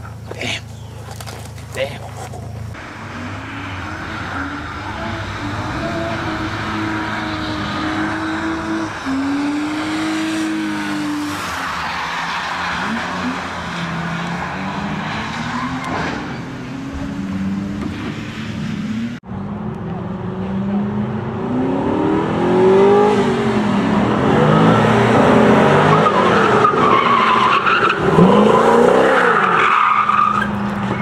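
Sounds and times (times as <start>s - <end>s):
tyres skidding on wet tarmac: 0.0s - 19.2s, 23.8s - 31.0s
car engine revving: 0.0s - 31.0s.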